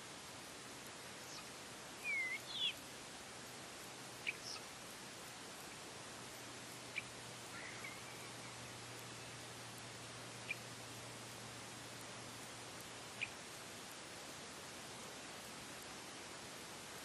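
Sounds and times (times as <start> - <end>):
steady outdoor hiss: 0.0 - 17.0
short high bird chirps: 2.0 - 2.8.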